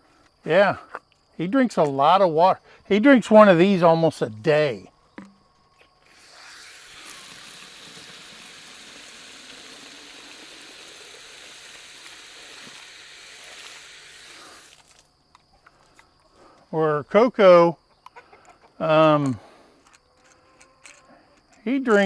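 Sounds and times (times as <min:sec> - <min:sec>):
hose water running into bottle: 0:06.1 - 0:15.1.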